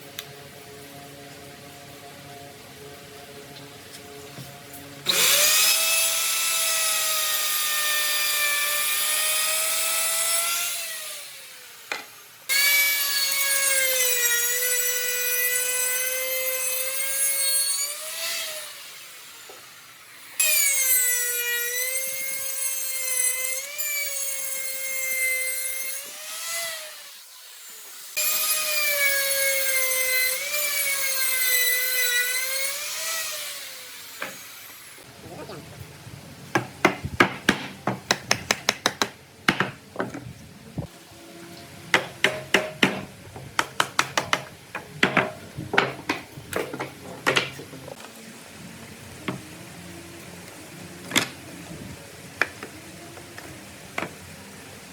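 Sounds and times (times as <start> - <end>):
power tool cutting wood: 4.0 - 35.1.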